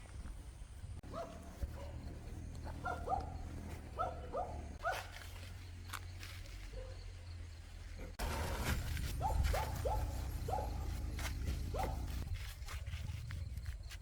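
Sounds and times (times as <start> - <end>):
dog yipping: 2.8 - 3.4.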